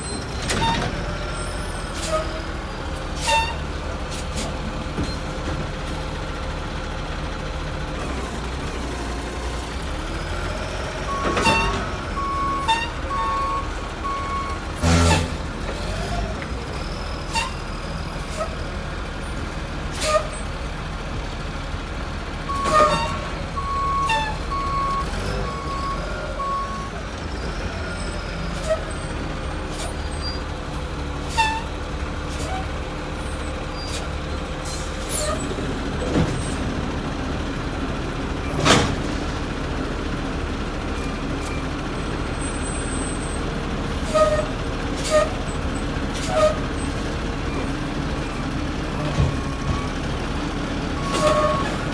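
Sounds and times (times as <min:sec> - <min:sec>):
truck engine rumbling: 0:00.0 - 0:51.9
reversing alarm beeping: 0:11.1 - 0:15.3, 0:23.6 - 0:27.0.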